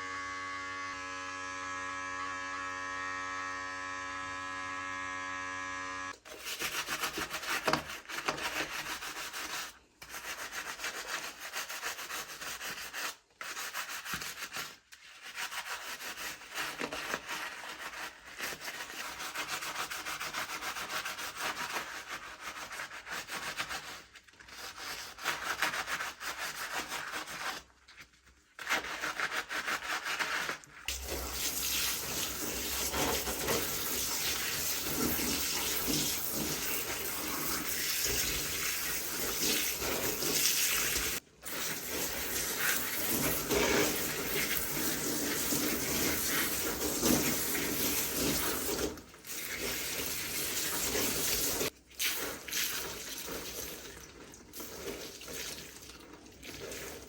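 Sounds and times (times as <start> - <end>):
small electric motor buzzing: 0.0 - 6.2.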